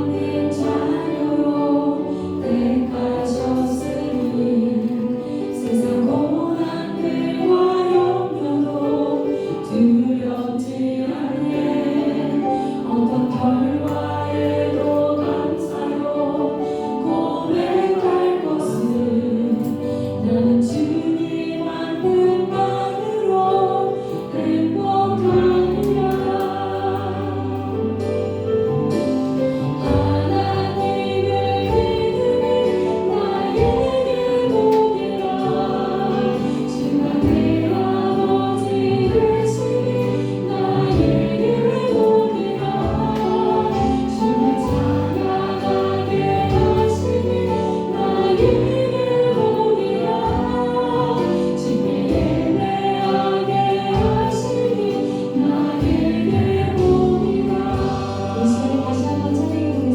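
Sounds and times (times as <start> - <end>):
congregation singing in unison: 0.0 - 59.9
instrumental accompaniment low notes: 0.0 - 59.9.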